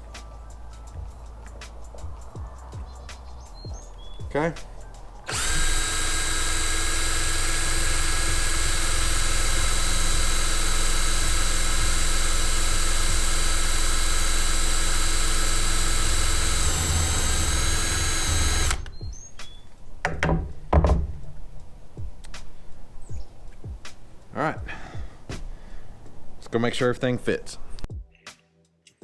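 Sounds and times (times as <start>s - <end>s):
electric drill boring through plastic: 5.2s - 19.0s
short knocks: 20.0s - 21.4s.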